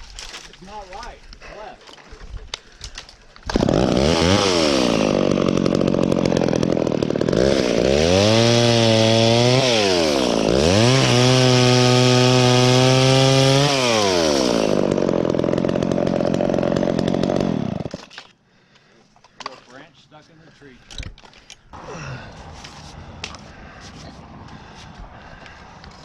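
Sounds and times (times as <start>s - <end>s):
chainsaw running: 3.4s - 18.3s.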